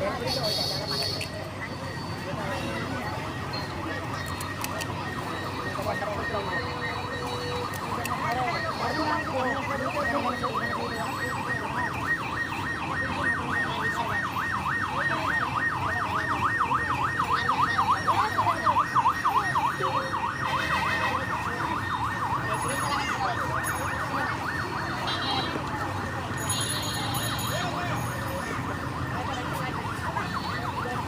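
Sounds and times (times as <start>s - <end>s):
electronic siren yelping: 4.0s - 26.4s.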